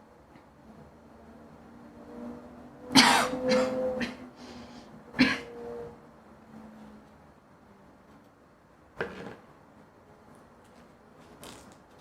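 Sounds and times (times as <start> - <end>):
short cough: 3.0 - 4.2, 5.2 - 5.5.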